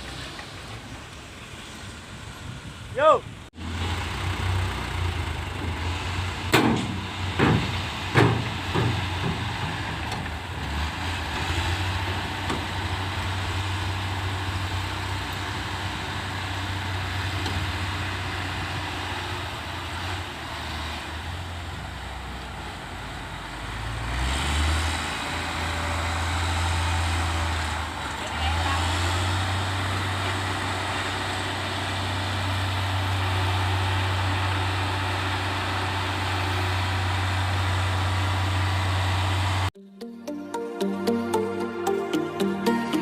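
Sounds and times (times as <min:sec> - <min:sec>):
diesel machinery running: 0:00.0 - 0:39.7
sharp knocks: 0:06.5 - 0:09.8.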